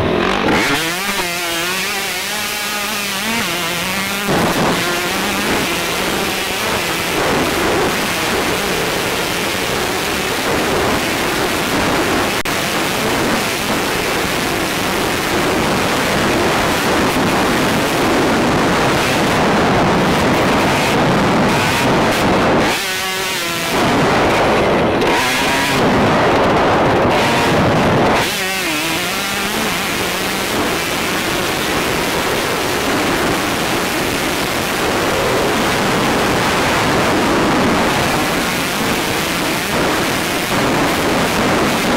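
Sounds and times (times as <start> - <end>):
motorbike engine revving: 0.0 - 41.9
wind buffeting camera: 0.0 - 41.9.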